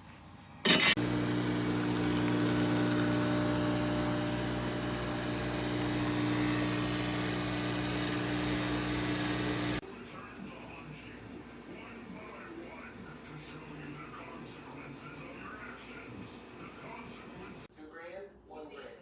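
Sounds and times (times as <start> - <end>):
steam wand hissing: 0.7 - 9.8
espresso machine low hum: 0.7 - 17.7.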